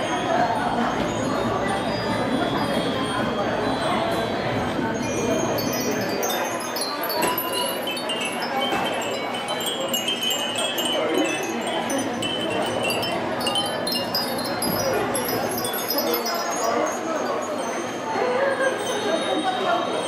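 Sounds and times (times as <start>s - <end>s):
wind chimes tinkling: 0.2s - 20.0s.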